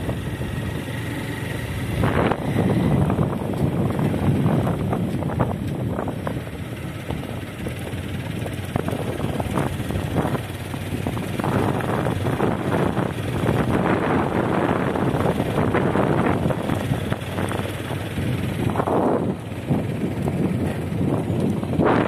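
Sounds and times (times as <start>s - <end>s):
road and engine rumble: 0.0s - 22.0s
wind buffeting microphone: 0.0s - 22.0s.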